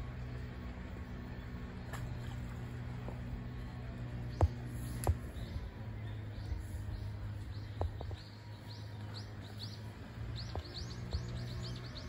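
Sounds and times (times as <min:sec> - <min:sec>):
bird chirping: 0:04.2 - 0:12.0.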